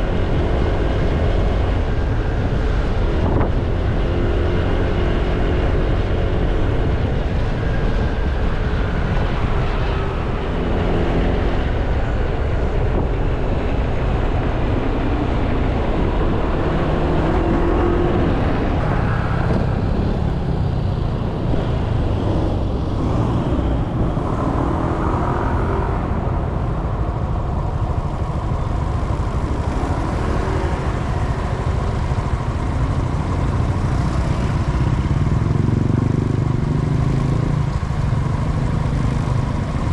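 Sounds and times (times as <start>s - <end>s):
road and traffic noise: 0.0s - 39.9s
scooter engine running: 26.0s - 39.9s.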